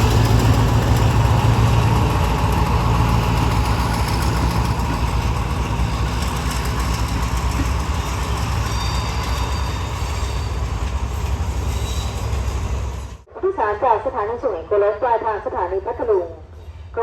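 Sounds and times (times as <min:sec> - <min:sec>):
diesel train engine idling: 0:00.0 - 0:10.0.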